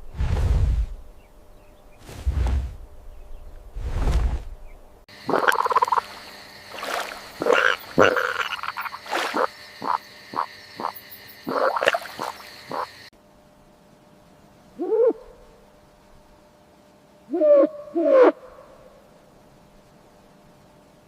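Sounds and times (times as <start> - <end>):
steady background hiss: 0.0 - 21.0
frogs croaking: 5.1 - 13.1.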